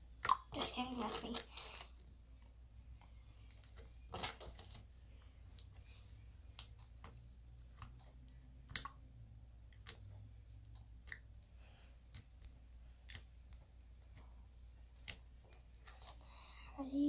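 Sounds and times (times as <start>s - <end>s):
slime squishing clicks and pops: 7.7s - 9.0s.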